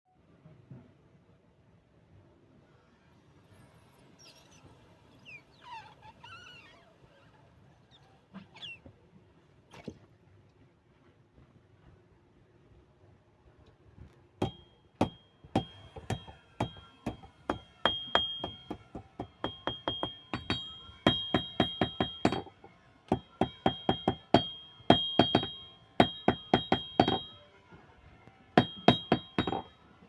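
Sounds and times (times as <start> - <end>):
hammer striking metal on anvil: 14.4 - 27.4, 28.6 - 29.8.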